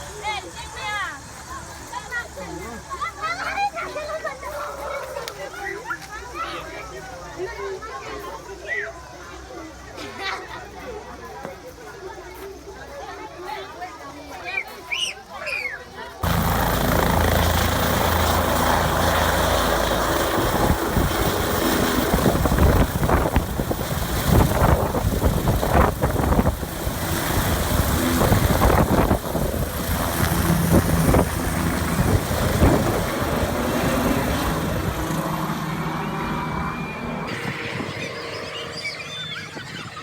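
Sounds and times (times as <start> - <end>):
helicopter rotor and engine: 16.2 - 40.0.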